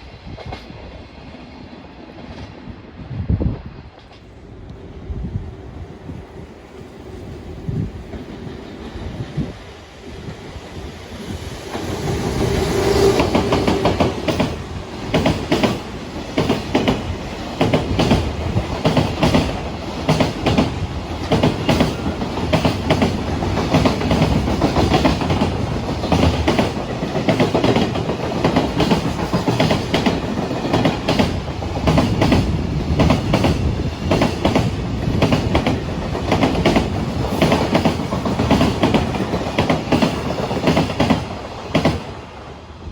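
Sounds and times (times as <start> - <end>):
train wheels clattering over rail joints: 11.7 - 42.2.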